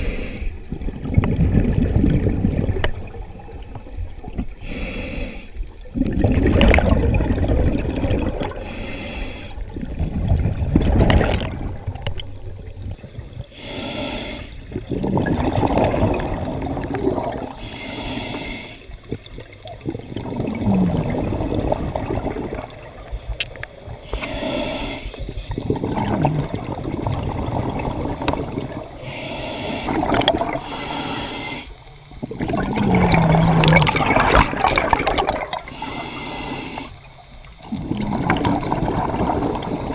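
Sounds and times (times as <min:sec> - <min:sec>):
regulator hiss on inhale: 0:00.0 - 0:00.9, 0:04.6 - 0:05.8, 0:08.5 - 0:09.9, 0:13.4 - 0:14.8, 0:17.5 - 0:19.1, 0:23.0 - 0:25.8, 0:28.8 - 0:32.2, 0:35.6 - 0:38.2, 0:39.5 - 0:39.9
gurgling exhaled bubbles: 0:00.0 - 0:04.6, 0:05.6 - 0:08.8, 0:09.5 - 0:13.6, 0:14.6 - 0:24.7, 0:25.3 - 0:31.1, 0:32.1 - 0:39.9.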